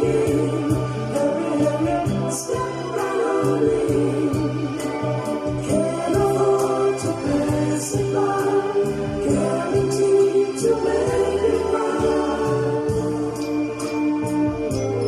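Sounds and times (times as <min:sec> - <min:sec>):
choir-like singing voices: 0:00.0 - 0:14.6
light percussion beat: 0:00.0 - 0:15.0.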